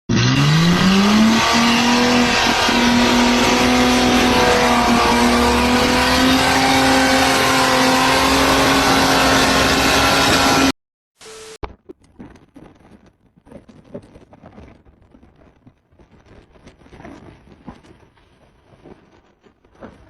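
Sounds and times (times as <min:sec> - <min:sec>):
car engine revving: 0:00.1 - 0:10.7.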